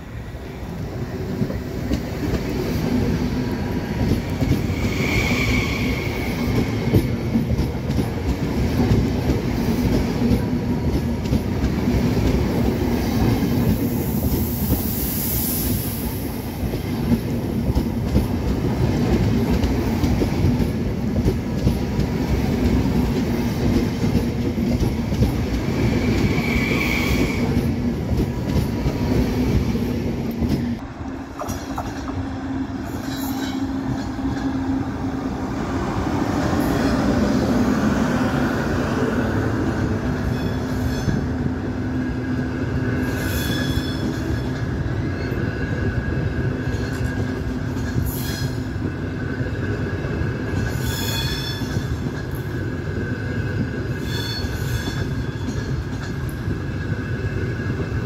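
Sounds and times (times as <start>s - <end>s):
train wheels rumbling on track: 0.0s - 58.0s
high hiss: 14.0s - 16.4s.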